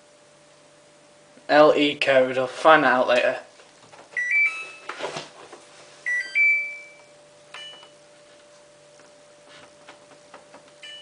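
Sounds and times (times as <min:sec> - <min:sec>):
faint steady hum: 0:00.0 - 0:11.0
washing machine two-note beep: 0:04.2 - 0:04.9, 0:06.0 - 0:08.0, 0:10.8 - 0:11.0.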